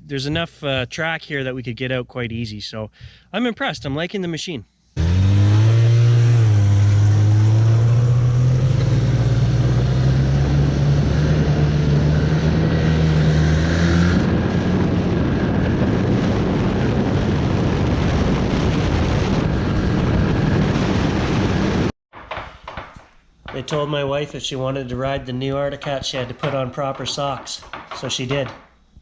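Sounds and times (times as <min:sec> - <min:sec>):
snowmobile engine running: 0:05.0 - 0:21.9.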